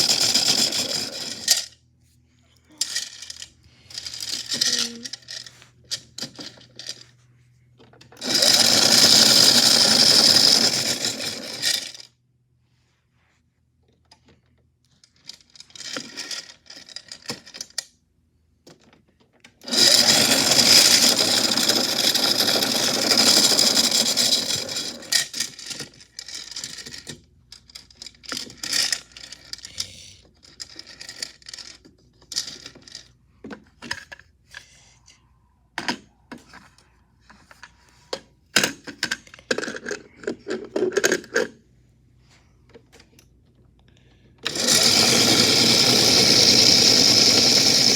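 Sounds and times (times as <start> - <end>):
metal chains rattling in toy machine: 0.0 - 1.8, 2.7 - 7.1, 8.2 - 12.1, 15.1 - 17.8, 19.6 - 33.1, 44.4 - 47.9.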